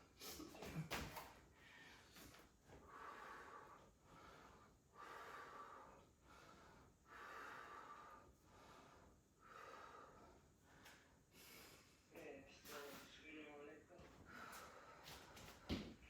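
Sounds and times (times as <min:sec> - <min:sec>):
woman breathing hard: 0:01.5 - 0:12.1, 0:14.1 - 0:16.0.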